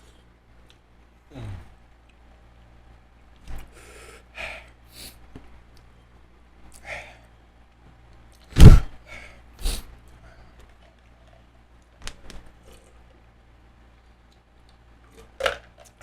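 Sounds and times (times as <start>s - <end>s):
sudden thump: 8.6s - 8.9s.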